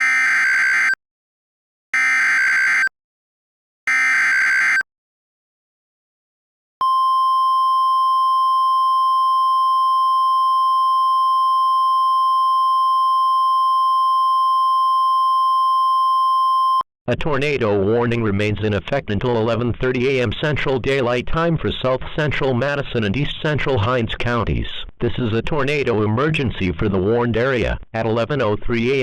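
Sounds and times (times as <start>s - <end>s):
warning alarm tone: 0.0s - 1.0s, 2.0s - 2.9s, 3.9s - 4.8s.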